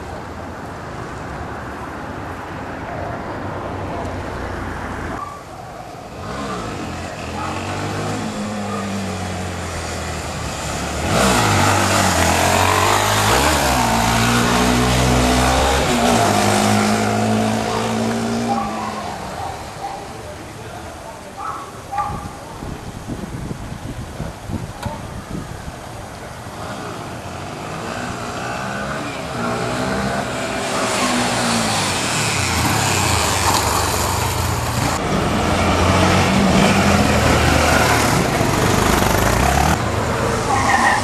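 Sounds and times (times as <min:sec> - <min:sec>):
motorcycle engine revving: 0:06.1 - 0:19.4, 0:26.5 - 0:40.0.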